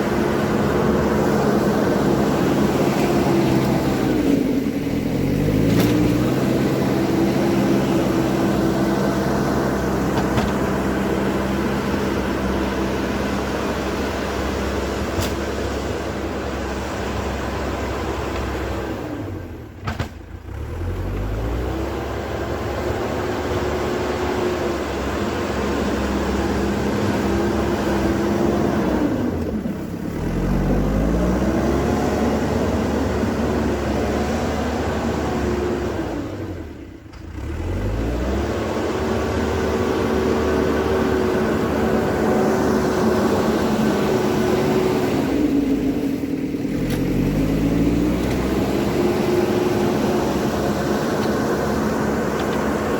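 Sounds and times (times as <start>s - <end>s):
diesel engine under load: 0.0s - 52.9s.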